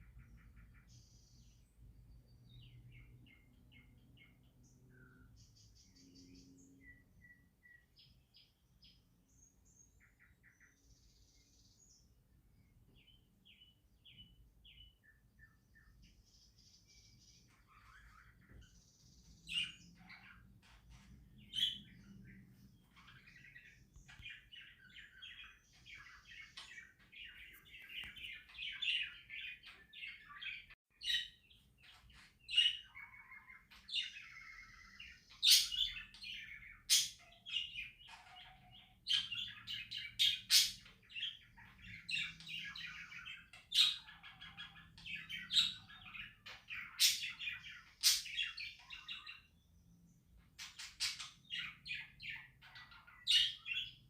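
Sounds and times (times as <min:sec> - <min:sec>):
budgerigars chattering: 0:23.0 - 0:49.5.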